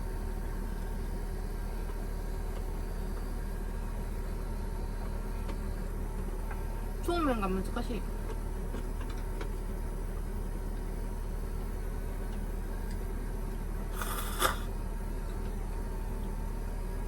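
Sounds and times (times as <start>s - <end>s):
electrical hum of appliances: 0.0s - 17.0s.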